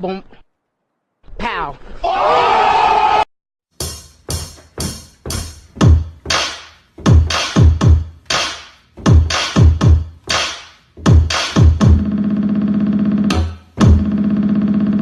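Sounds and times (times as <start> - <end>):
sliding bass kicks: 3.8 - 6.4, 7.0 - 8.1, 9.0 - 10.2, 11.0 - 12.2, 13.3 - 15.0
drum machine beat: 3.8 - 15.0
buzzing synth bass note: 11.6 - 15.0.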